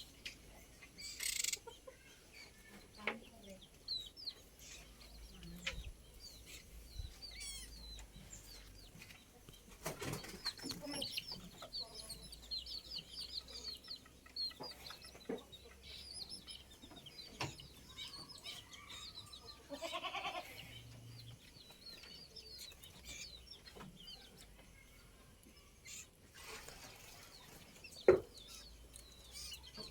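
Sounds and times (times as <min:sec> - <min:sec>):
birds chirping: 0:00.0 - 0:29.9
chicken clucking: 0:00.0 - 0:29.9.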